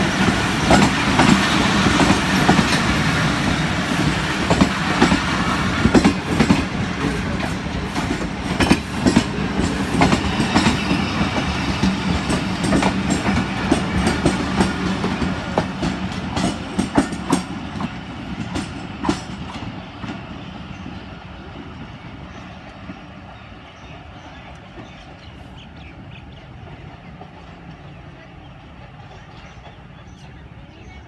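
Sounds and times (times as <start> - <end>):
train wheels clacking over rail joints: 0.0 - 20.3.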